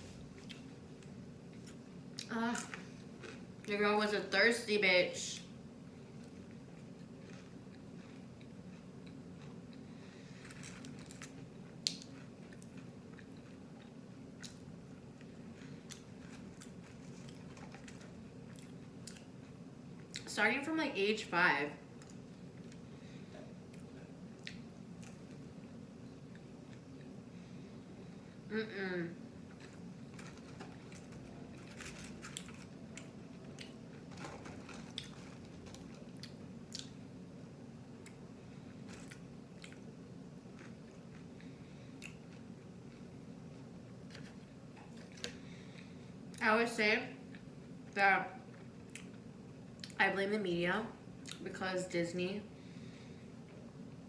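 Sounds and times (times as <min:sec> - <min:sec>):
chewing crunchy food: 0:00.2 - 0:03.8, 0:05.4 - 0:20.3, 0:23.6 - 0:27.2, 0:29.4 - 0:37.1, 0:38.0 - 0:43.1, 0:44.0 - 0:46.4, 0:48.4 - 0:50.0, 0:51.2 - 0:51.4.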